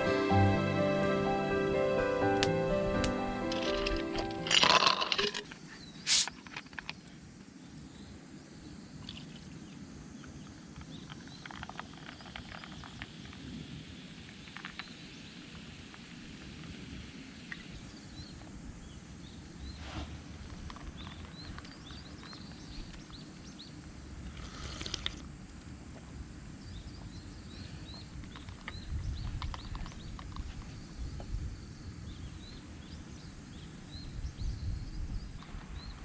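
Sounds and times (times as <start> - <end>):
small birds chirping: 17.4 - 25.0, 26.6 - 36.0.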